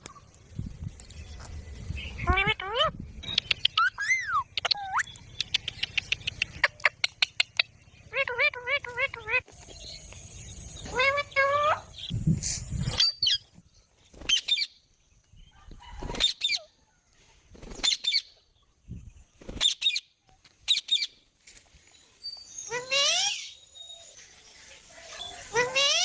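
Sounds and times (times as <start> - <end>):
parrot squawking: 2.2 - 3.0, 3.8 - 5.2, 6.6 - 9.4, 10.9 - 12.1.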